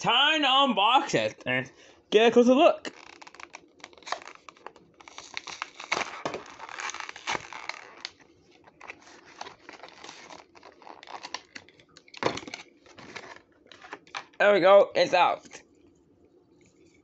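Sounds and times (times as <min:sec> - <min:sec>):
plastic and cardboard crinkling: 0:02.9 - 0:14.4.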